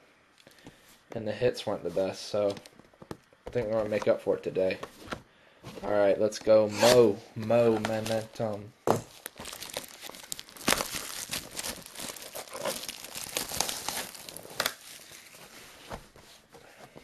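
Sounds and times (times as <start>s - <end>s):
plastic wrap crinkling and tearing: 9.0s - 15.8s.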